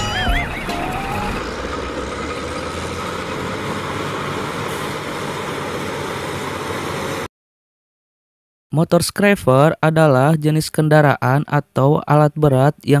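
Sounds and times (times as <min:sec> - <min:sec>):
diesel engine running: 0:00.0 - 0:07.3.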